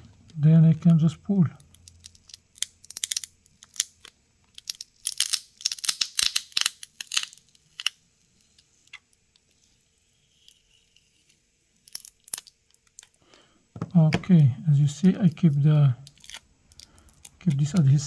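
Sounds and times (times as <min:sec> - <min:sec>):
adhesive strip crackling and tearing: 0:01.6 - 0:08.0, 0:16.0 - 0:18.0.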